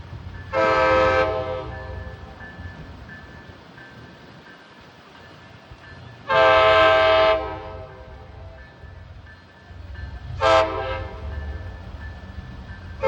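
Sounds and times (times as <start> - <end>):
low train rumble: 0.0 - 13.0
train air horn blasts: 0.5 - 2.3, 6.2 - 8.6, 10.3 - 11.6.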